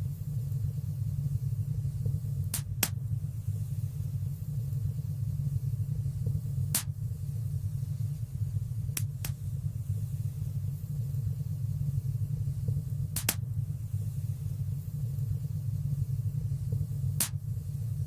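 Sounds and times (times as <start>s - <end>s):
fire crackling pops: 1.8s - 3.6s, 6.2s - 7.3s, 8.8s - 10.0s, 12.0s - 14.1s, 16.4s - 17.7s.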